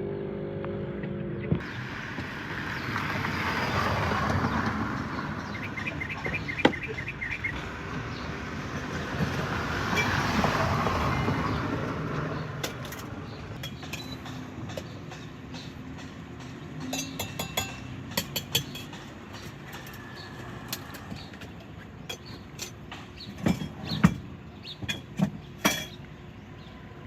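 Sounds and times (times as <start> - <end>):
vehicle passing: 0.6 - 13.6
light clinks and knocks: 12.6 - 24.2.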